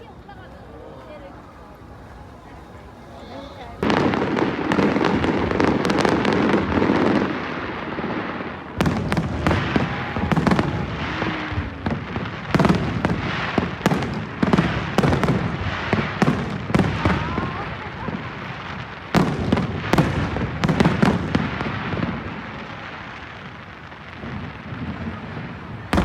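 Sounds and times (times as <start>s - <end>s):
fireworks crackling: 0.0s - 26.0s
fireworks bangs: 3.7s - 26.0s.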